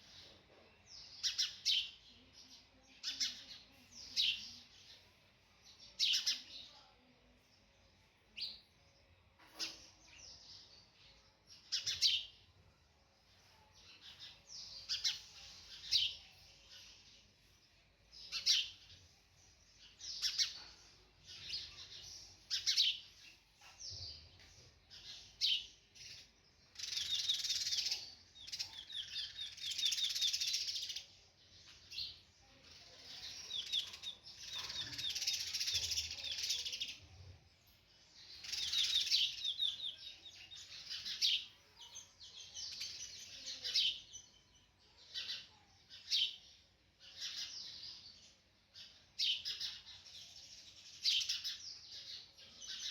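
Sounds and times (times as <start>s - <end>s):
bird chirps and trills: 19.8s - 37.2s, 38.2s - 52.9s.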